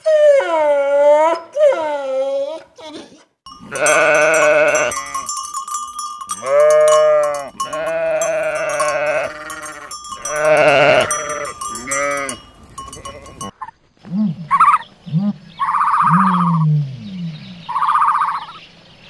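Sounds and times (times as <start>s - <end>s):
sheep bleating: 3.6s - 5.3s, 6.3s - 13.5s.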